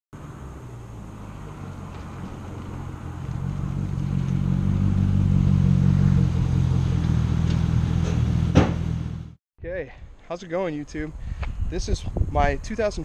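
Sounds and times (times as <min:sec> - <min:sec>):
car engine rumbling: 0:00.2 - 0:09.4.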